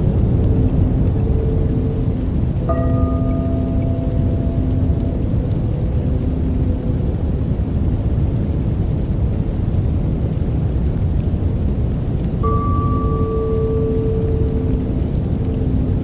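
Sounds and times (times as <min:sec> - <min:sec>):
soft bell-like tone: 0:00.0 - 0:08.1, 0:12.4 - 0:16.0
deep thunder-like rumble: 0:00.0 - 0:16.0
steady rain: 0:00.0 - 0:16.0.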